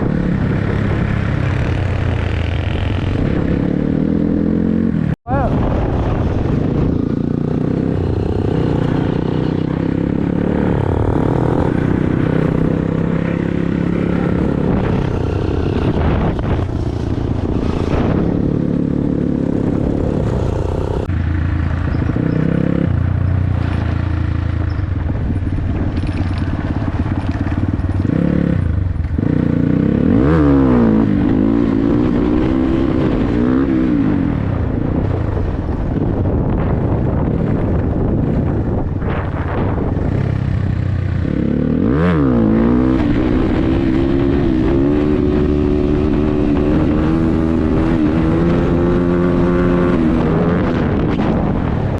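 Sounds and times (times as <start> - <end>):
dirt bike engine revving: 6.6 - 21.1, 41.0 - 51.5.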